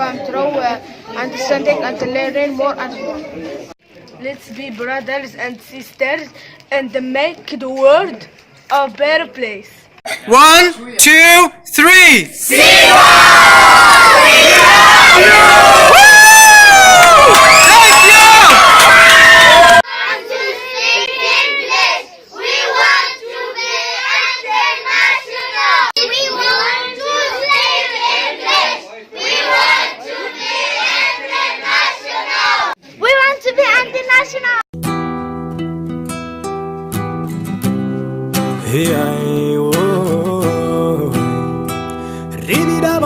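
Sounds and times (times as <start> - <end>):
children singing together: 19.9 - 32.8
strummed acoustic guitar: 34.8 - 43.0.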